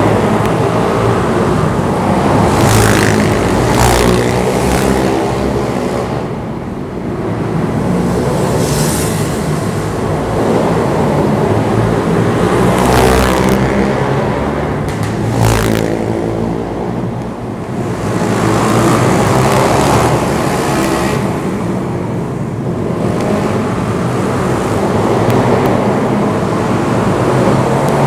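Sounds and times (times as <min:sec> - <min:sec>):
pit bike engine revving: 0:02.2 - 0:05.8, 0:18.2 - 0:21.2.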